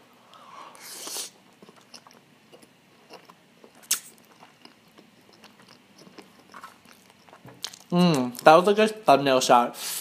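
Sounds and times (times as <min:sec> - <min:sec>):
person chewing: 0:00.8 - 0:08.5.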